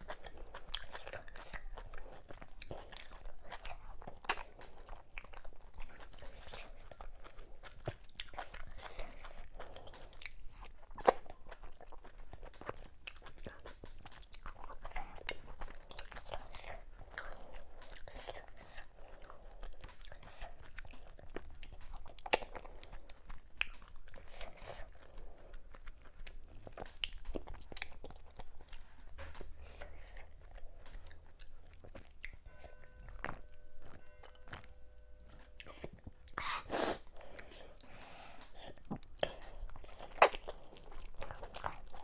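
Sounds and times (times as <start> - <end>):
chewing and mouth noises: 0.0 - 42.0
faint steady tone: 32.4 - 36.3.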